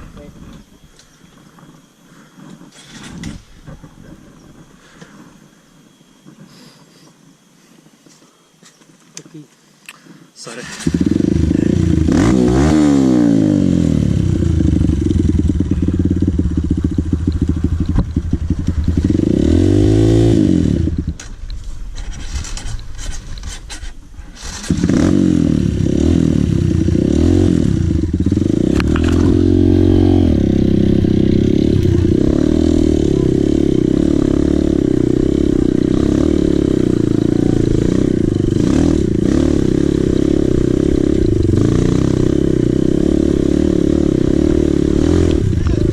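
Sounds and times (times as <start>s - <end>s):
dirt bike engine revving: 10.5s - 21.3s, 24.3s - 45.9s.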